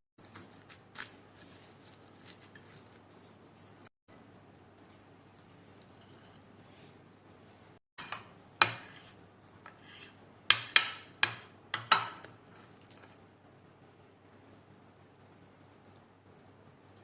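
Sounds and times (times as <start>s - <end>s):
cutlery clinking against plate: 9.7s - 13.1s.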